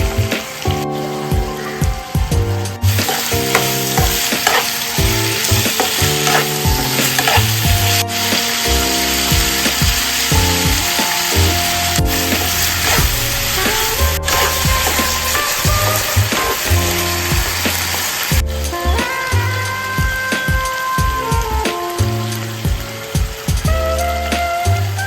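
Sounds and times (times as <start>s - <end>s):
background music: 0.0s - 25.0s
chicken sizzling in a pan: 2.8s - 21.0s
spatula scraping a pan: 2.9s - 18.3s.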